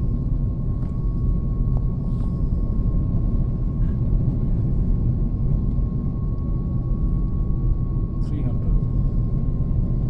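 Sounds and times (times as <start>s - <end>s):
airliner engines and airflow rumble: 0.0s - 10.0s.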